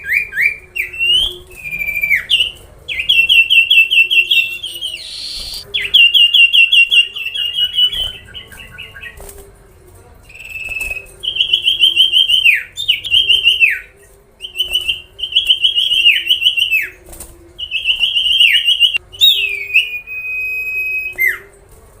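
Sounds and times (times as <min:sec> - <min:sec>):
songbird singing trilled phrases: 0:00.8 - 0:09.2.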